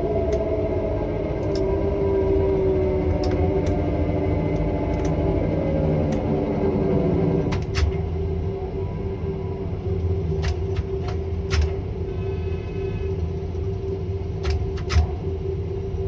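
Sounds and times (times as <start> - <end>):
crane machinery humming: 0.0 - 16.0
sharp clicks: 4.5 - 5.3, 7.5 - 8.1, 10.4 - 11.8, 14.4 - 15.2.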